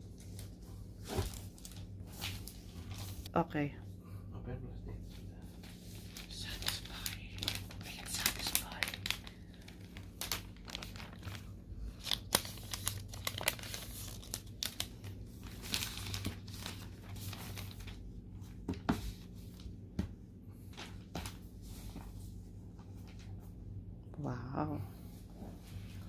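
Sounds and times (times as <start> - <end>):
plastic shrink-wrap tearing: 6.0 - 18.0.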